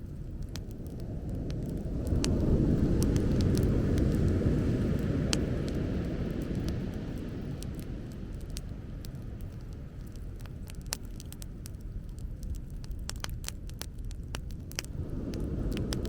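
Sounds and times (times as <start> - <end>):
bonfire crackling: 0.0 - 16.0.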